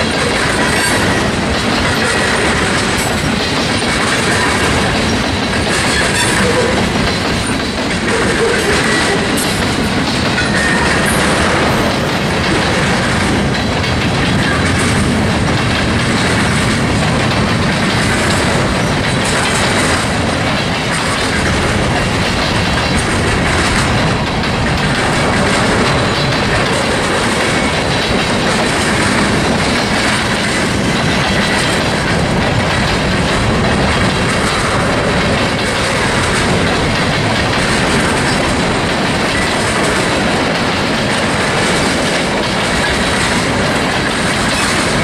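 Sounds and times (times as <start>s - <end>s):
freight train wheels on rails: 0.0s - 45.0s.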